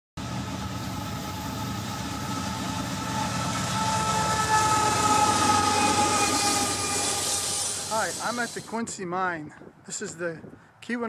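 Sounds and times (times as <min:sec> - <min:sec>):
rail vehicle rumbling on track: 0:00.2 - 0:08.9
high wavering squealing: 0:00.8 - 0:08.8.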